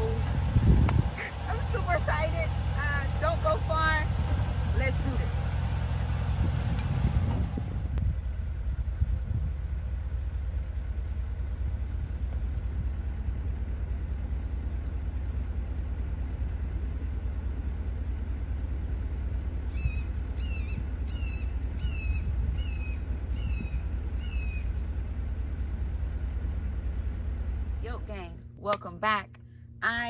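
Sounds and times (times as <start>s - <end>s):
steady low rumble: 0.0s - 30.0s
bird calling falling notes: 19.7s - 24.9s.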